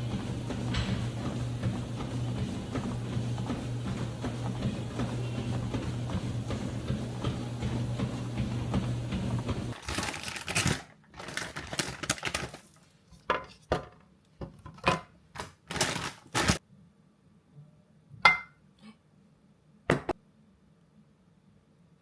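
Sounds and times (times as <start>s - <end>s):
tableware clinking: 18.2s - 18.6s.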